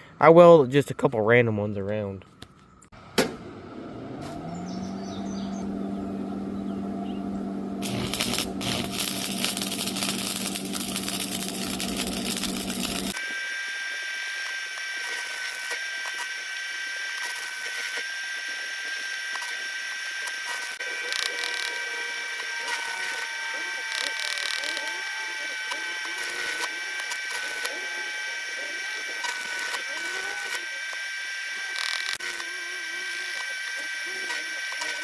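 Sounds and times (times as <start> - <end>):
electric grinder motor whining: 3.6 - 35.0
metal being ground: 7.8 - 13.2.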